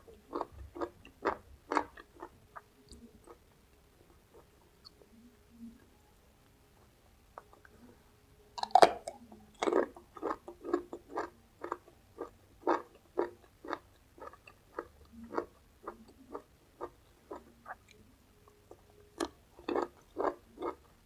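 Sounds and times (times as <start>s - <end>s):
crunching bite into raw vegetables: 8.6s - 10.4s
crunchy chewing: 8.6s - 18.0s, 18.6s - 20.9s.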